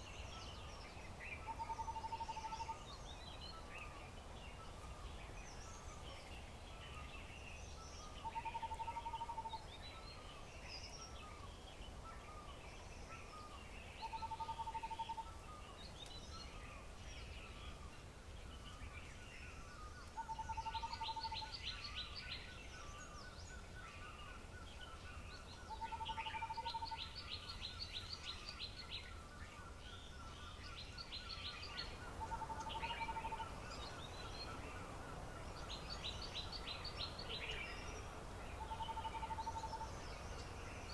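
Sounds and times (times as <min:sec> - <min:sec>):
high rattling bird calls: 0:31.4 - 0:40.9
low pulsed bird trill: 0:31.5 - 0:40.9.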